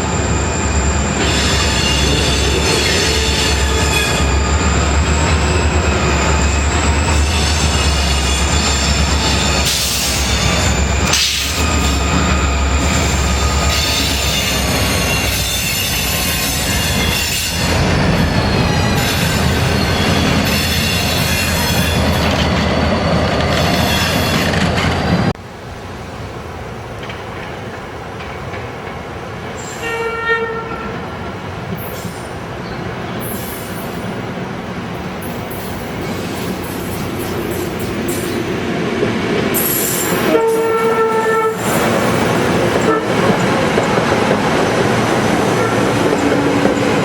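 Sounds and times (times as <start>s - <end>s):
train wheels squealing on rail: 0.0s - 25.3s, 29.5s - 31.0s, 31.7s - 38.8s, 39.4s - 47.0s
train rumbling past: 0.0s - 47.0s
train horn: 29.6s - 31.0s, 40.1s - 41.9s, 42.8s - 43.3s, 45.5s - 46.6s.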